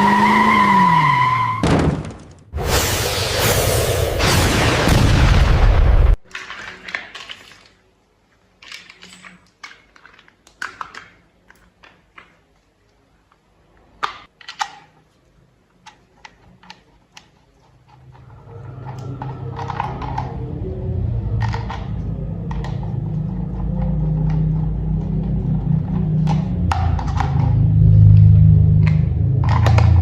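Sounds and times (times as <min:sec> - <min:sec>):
plastic toy parts clicking: 0:08.6 - 0:12.5, 0:14.0 - 0:15.1, 0:15.7 - 0:20.4, 0:28.8 - 0:30.0
low steady hum: 0:15.0 - 0:30.0.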